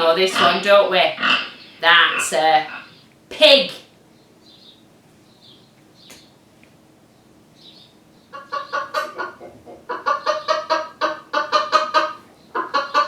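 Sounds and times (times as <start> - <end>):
hen clucking: 0.0 - 3.1, 8.3 - 13.0.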